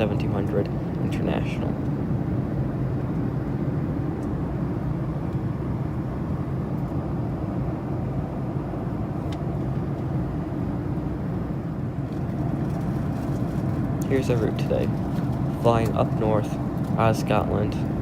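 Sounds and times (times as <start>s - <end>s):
airliner cabin engine roar: 0.0s - 18.0s.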